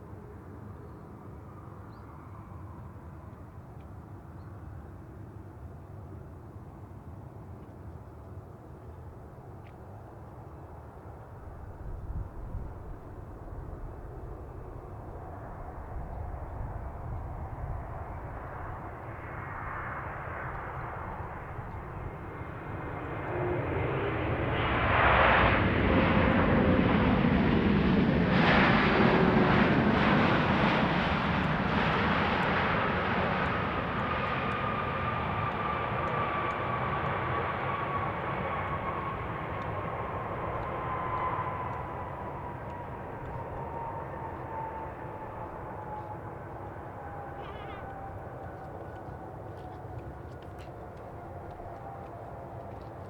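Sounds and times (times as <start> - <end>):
jet engine whine: 0.0 - 7.6, 9.1 - 53.0
jet engine rumble: 11.4 - 53.0.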